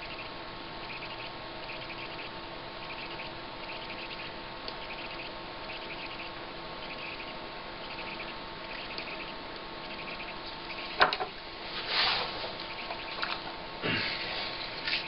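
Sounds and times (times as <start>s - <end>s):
steady faint hum: 0.0s - 15.0s
scraping rustle: 11.6s - 12.6s.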